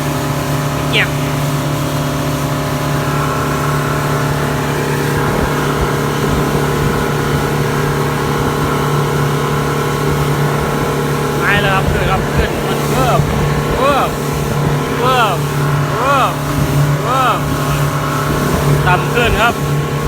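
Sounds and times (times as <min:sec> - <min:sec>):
motorboat engine drone: 0:00.0 - 0:20.0.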